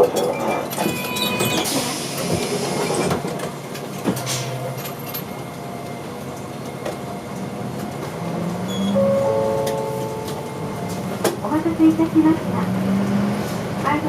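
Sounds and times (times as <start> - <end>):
road and cabin noise: 0.0 - 14.0
diesel bus engine running: 3.5 - 14.0.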